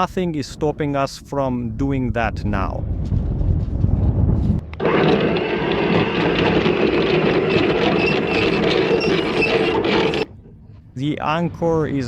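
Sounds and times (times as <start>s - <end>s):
electric anchor windlass hauling chain: 4.8s - 10.6s.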